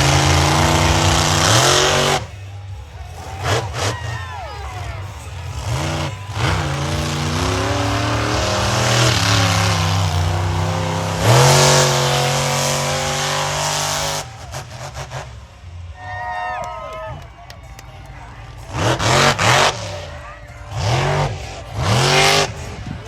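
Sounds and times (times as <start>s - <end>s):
truck engine revving: 0.0s - 23.0s.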